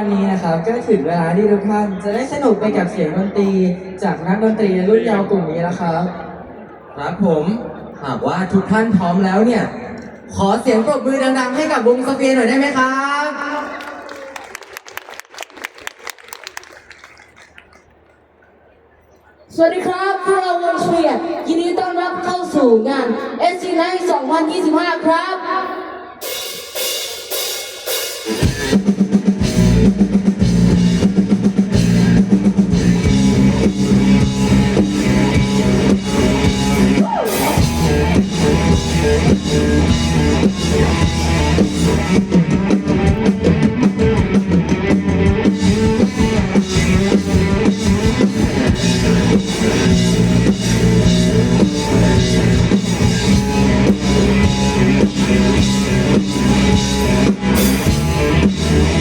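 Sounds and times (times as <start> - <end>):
keyboard: 26.0 - 59.0
drum kit beat: 26.2 - 59.0
electric guitar: 27.9 - 59.0
bass: 28.3 - 59.0.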